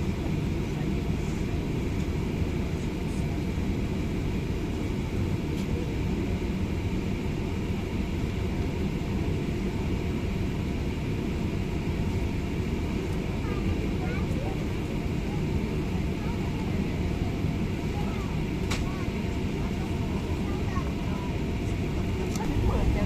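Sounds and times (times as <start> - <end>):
airliner cabin engine drone: 0.0 - 23.0
faint steady whine: 0.0 - 23.0.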